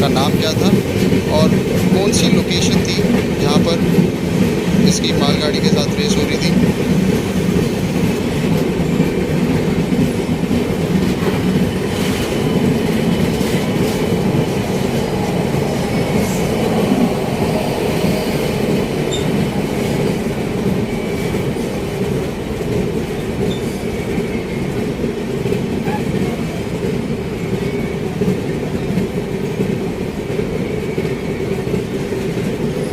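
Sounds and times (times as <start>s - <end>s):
rail joint clicks: 0.0s - 32.9s
train wheels rumbling on rail: 0.0s - 32.9s
high wheel squeal: 19.1s - 19.3s.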